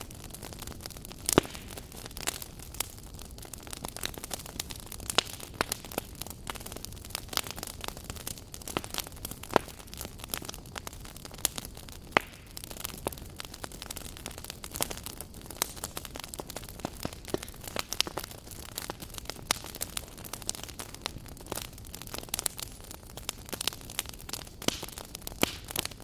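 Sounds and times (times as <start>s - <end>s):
fire crackles and pops: 0.0s - 26.0s
wood fire burning: 0.0s - 26.0s.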